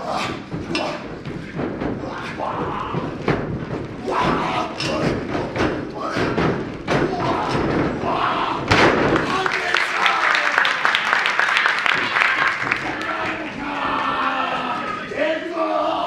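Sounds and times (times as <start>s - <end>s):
people shouting: 2.0s - 3.3s, 4.0s - 5.3s, 5.9s - 10.9s, 12.0s - 16.0s.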